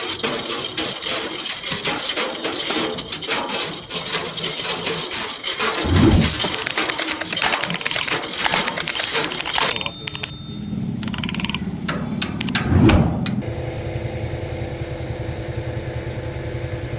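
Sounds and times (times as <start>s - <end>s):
metal clinking and clattering: 0.0s - 10.7s
small engine starting and idling: 4.7s - 16.9s
sharp clicks: 5.8s - 10.4s, 11.0s - 13.4s.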